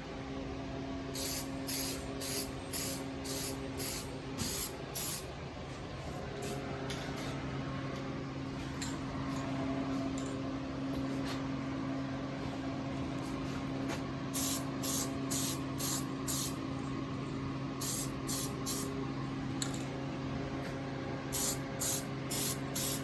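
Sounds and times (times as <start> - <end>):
aerosol spray can hissing: 1.2 - 5.2, 14.4 - 16.6, 17.8 - 18.9, 21.4 - 23.0.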